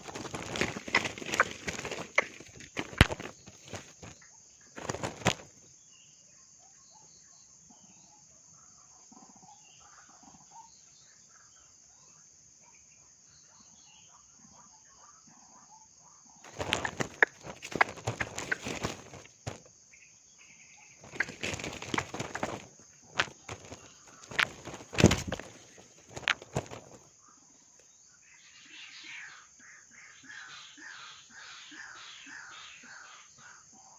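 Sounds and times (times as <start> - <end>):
rustling: 0.0 - 4.2, 4.8 - 5.6, 16.5 - 19.7, 21.0 - 27.1
faint bird calls: 13.5 - 33.9.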